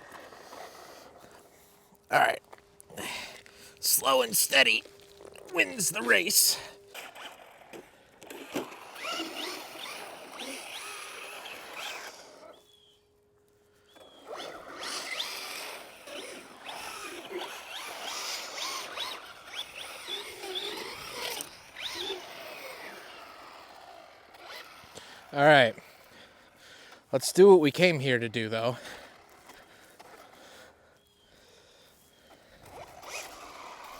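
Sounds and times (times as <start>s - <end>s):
rc car motor whining: 0.0s - 13.0s, 13.7s - 27.1s, 28.7s - 33.9s.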